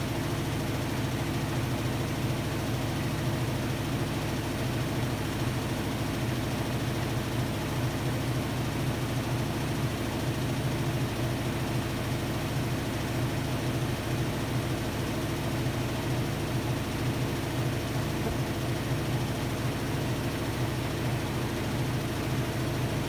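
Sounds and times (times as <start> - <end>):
washer-dryer humming: 18.2 - 18.8.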